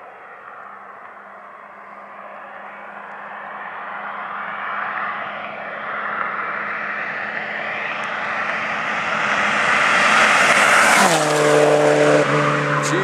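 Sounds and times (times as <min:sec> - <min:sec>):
car passing at high speed: 0:00.0 - 0:13.0.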